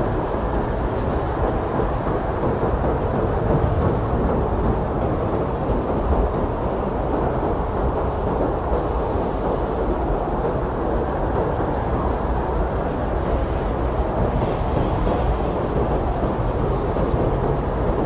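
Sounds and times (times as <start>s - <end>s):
blizzard wind blowing hard: 0.0s - 18.0s.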